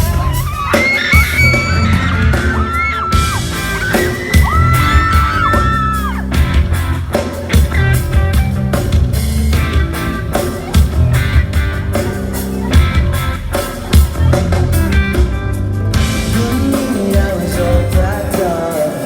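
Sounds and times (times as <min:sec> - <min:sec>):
crowd screaming: 0:00.0 - 0:08.6
pop-rock band playing live: 0:00.0 - 0:19.0.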